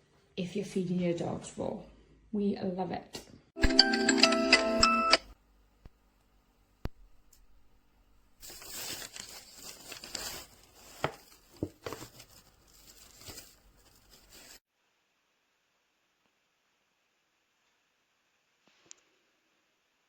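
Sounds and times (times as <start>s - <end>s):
packaging crinkling and rustling: 8.4s - 14.6s.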